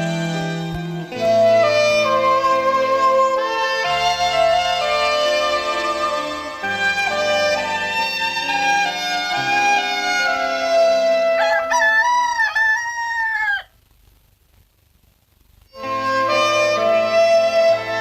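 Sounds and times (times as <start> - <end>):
orchestral film music: 0.0 - 11.6, 15.8 - 18.0
rooster crowing: 11.2 - 13.8.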